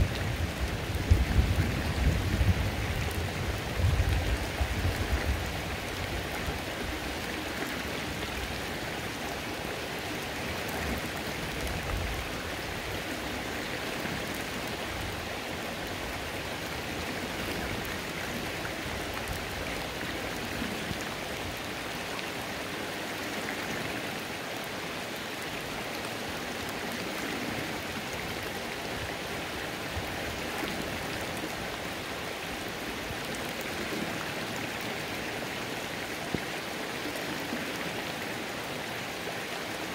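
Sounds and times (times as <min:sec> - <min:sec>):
creek running water: 0:00.0 - 0:39.9
rain falling on water: 0:00.0 - 0:39.9.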